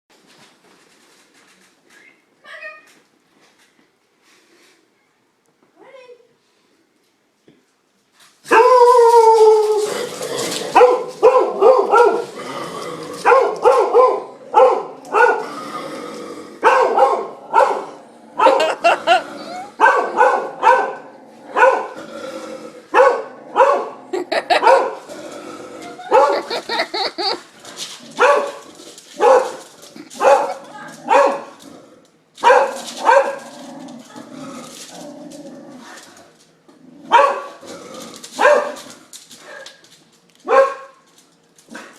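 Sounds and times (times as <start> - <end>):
dog howling bark: 8.5 - 10.0, 10.7 - 12.3, 13.2 - 15.4, 16.6 - 21.9, 26.0 - 27.3
dog barking: 10.8 - 12.3, 13.2 - 15.4, 16.6 - 18.8, 19.8 - 21.0, 21.6 - 21.9, 23.0 - 25.0, 26.1 - 26.7, 28.2 - 28.6, 29.2 - 29.6, 30.2 - 31.6, 32.4 - 33.4, 37.1 - 37.6, 38.4 - 38.8, 40.5 - 41.0.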